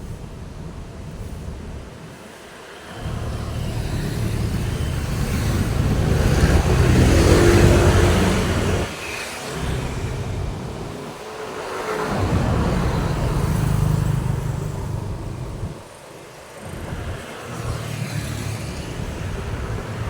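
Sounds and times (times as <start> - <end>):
road traffic: 0.0 - 20.0
vehicle driving past: 3.0 - 16.0.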